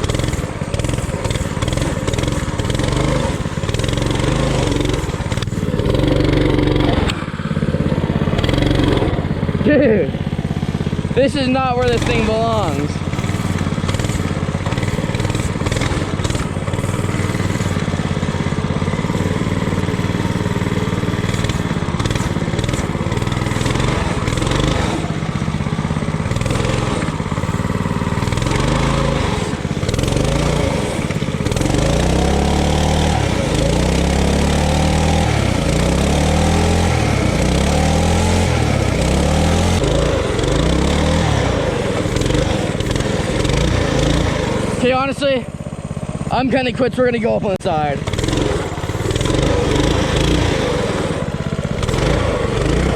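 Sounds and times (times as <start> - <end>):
small engine revving: 0.0 - 52.9.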